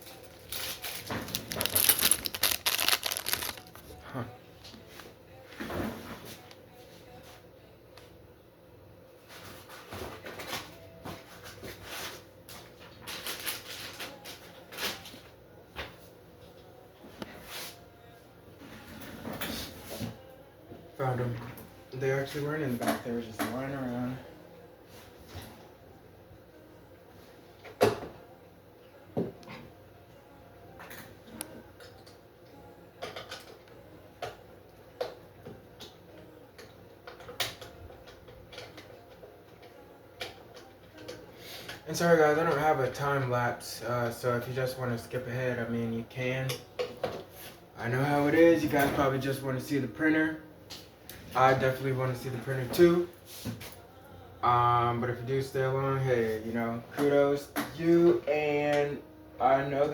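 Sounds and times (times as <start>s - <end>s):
hands rummaging through packaging: 0.0s - 4.0s.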